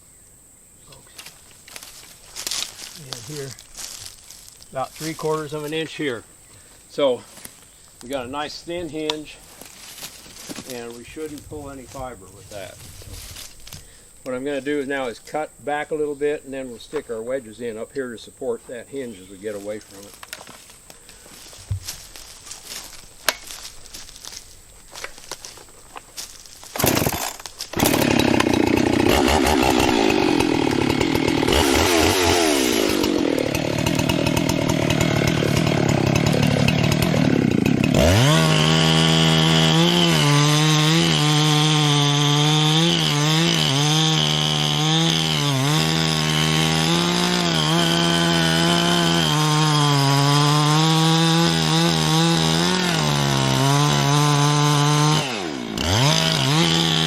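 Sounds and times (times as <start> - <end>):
chainsaw cutting tree trunk: 26.6 - 57.0.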